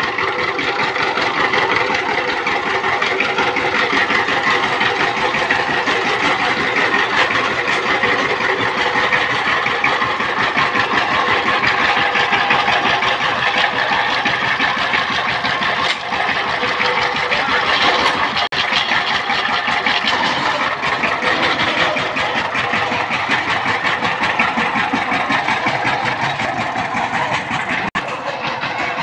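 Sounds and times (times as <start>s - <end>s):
diesel engine clattering: 0.0s - 29.0s.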